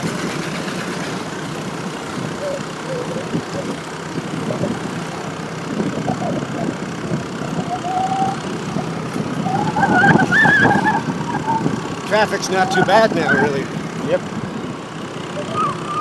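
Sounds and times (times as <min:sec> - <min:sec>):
motorcycle engine in traffic: 0:00.0 - 0:16.0
loud wavering tone: 0:05.7 - 0:13.8, 0:14.5 - 0:16.0.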